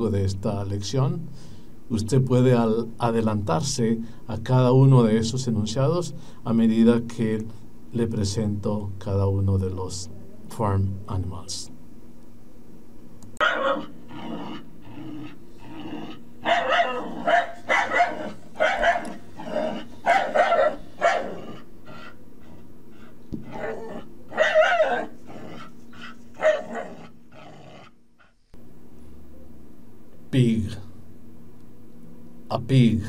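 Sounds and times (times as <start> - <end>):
steady low hum: 0.0 - 33.0
dog barking: 13.4 - 14.6, 16.4 - 22.2, 23.4 - 27.1.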